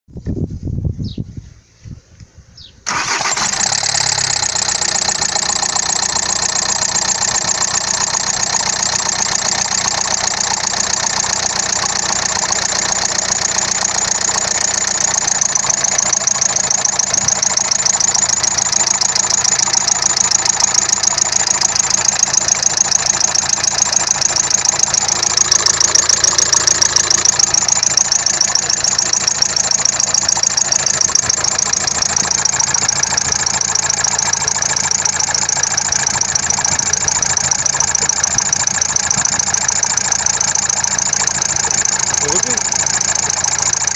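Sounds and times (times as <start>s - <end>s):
engine idling: 2.9s - 43.9s
pulsing high-pitched whistle: 12.4s - 43.9s.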